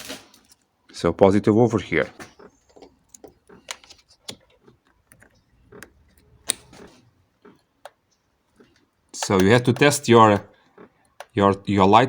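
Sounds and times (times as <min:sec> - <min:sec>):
probe clicking on metal terminals: 0:02.3 - 0:11.6.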